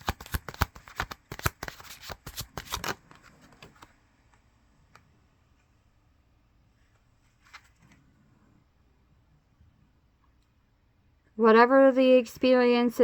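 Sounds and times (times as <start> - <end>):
cards being shuffled: 0.0 - 4.0.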